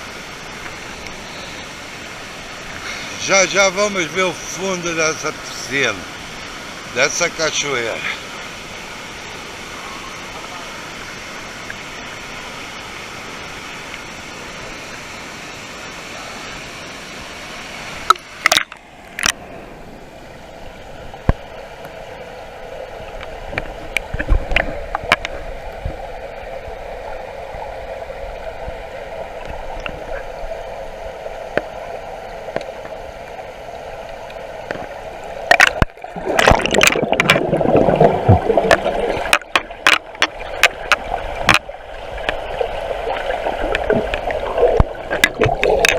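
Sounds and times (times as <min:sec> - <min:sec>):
water swirling and gurgling: 0:00.0 - 0:45.9
water splashing: 0:21.1 - 0:45.9.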